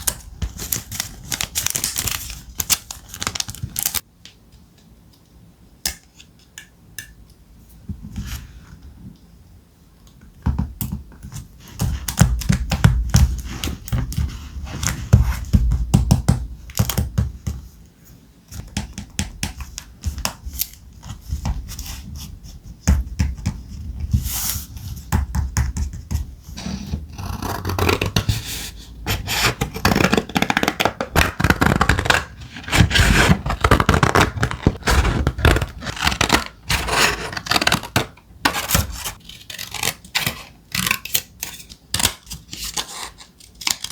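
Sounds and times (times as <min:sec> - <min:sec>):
thick paper rustling: 0:29.7 - 0:37.9.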